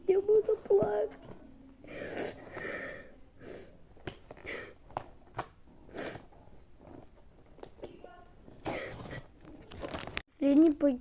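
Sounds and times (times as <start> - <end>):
plastic packaging rustling: 6.5 - 10.8.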